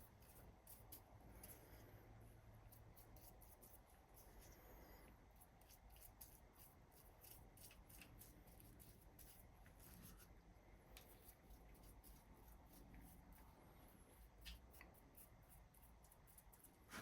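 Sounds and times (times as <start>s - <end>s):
low room hum: 0.0s - 17.0s
hand tool scratching paint: 5.4s - 10.2s.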